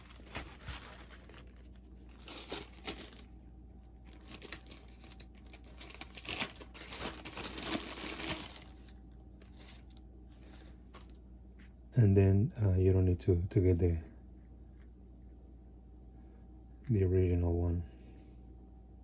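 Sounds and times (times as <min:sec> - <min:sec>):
crinkling rustles: 0:00.0 - 0:11.7.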